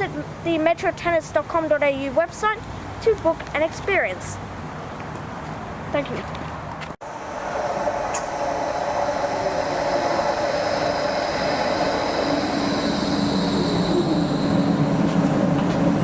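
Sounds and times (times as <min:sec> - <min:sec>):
tram wheels rumbling on rails: 0:07.0 - 0:16.0
whining electric motor: 0:07.0 - 0:16.0.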